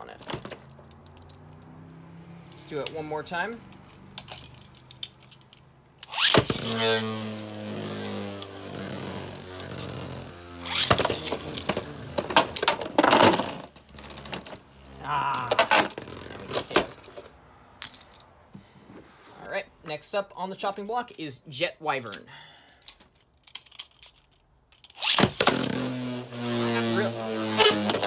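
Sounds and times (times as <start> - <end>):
spinning tops whirring: 9.3 - 13.7.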